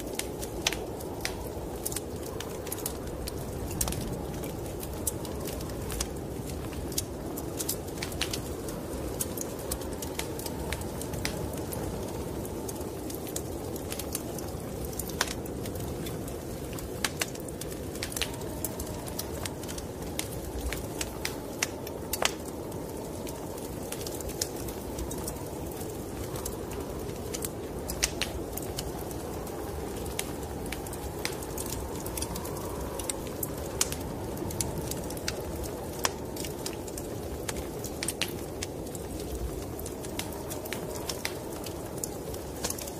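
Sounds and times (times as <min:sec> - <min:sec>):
fire popping and snapping: 0:00.0 - 0:42.9
low rumble of wind: 0:00.0 - 0:42.9
low rushing of fire: 0:00.0 - 0:42.9
wood fire crackling: 0:00.0 - 0:42.9.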